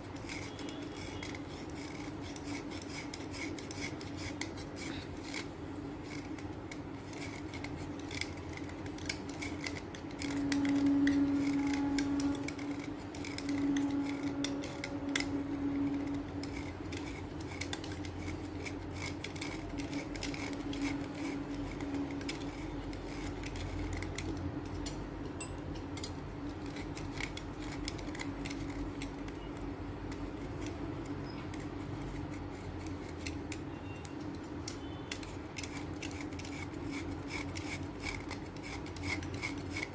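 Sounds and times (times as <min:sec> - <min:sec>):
chalk scratching and crumbling: 0:00.0 - 0:24.5, 0:34.3 - 0:39.9.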